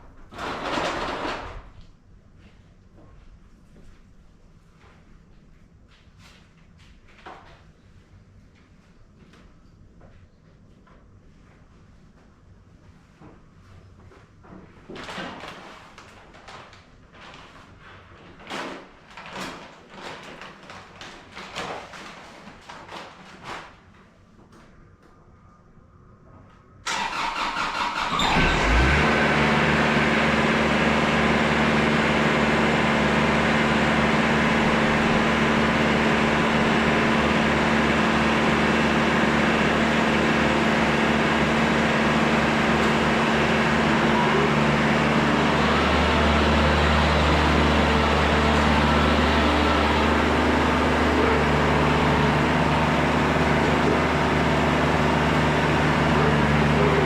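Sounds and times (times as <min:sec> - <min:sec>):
starter motor cranking: 0:26.9 - 0:29.8
tractor diesel engine running: 0:26.9 - 0:57.0.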